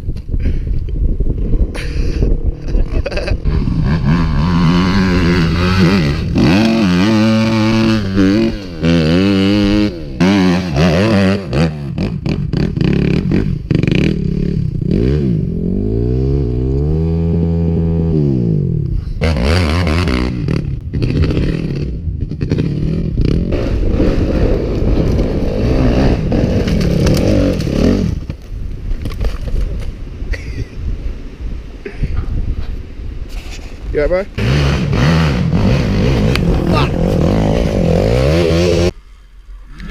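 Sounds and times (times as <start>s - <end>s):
dirt bike engine revving: 2.5s - 28.3s, 34.4s - 39.0s
rough scraping noise: 33.3s - 39.9s.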